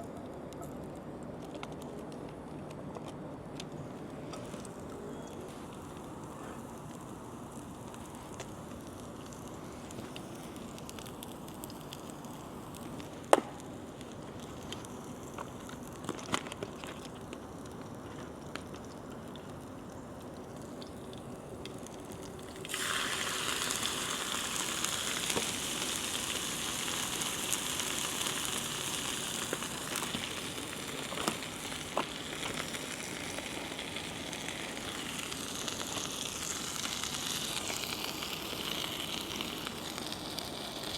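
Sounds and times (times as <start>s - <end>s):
loud sizzling: 22.0s - 40.9s.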